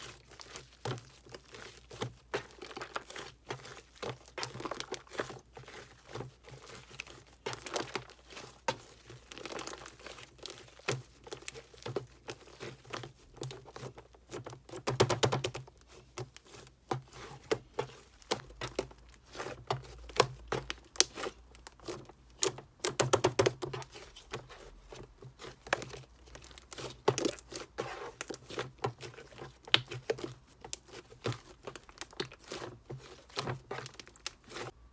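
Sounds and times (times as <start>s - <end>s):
slime squishing by hand: 0.0s - 34.9s.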